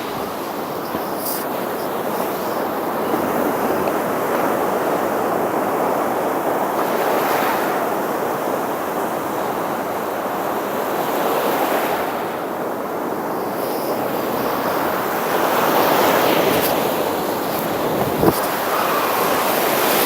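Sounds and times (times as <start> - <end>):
surf breaking on beach: 0.0 - 20.0
wind on microphone: 11.8 - 20.0.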